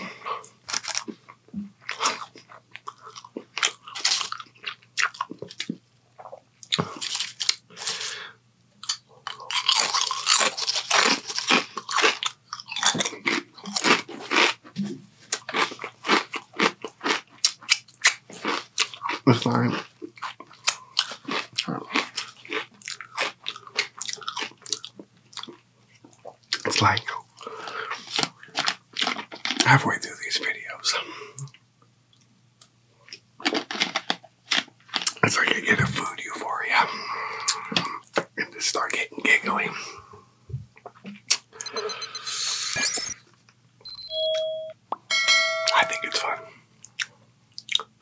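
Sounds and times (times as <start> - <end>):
man crunching a sandwich: 0.4 - 8.2, 8.8 - 25.6, 27.8 - 29.6, 33.1 - 35.6.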